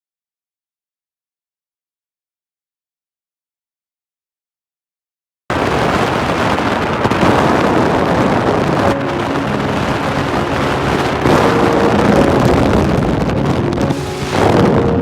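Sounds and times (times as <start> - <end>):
loud rushing noise: 5.5 - 15.0
faint held musical notes: 6.2 - 15.0.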